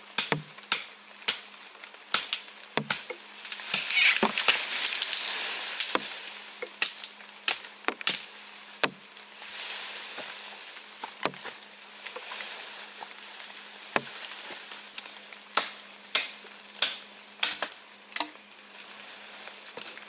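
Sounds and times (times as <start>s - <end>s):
sharp knocks: 0.2s - 0.5s, 2.8s - 3.1s.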